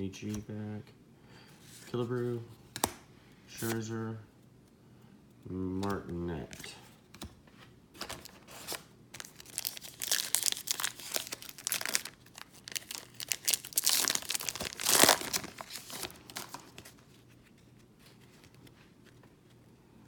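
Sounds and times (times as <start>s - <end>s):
foil wrapper crinkling and tearing: 8.6s - 17.0s.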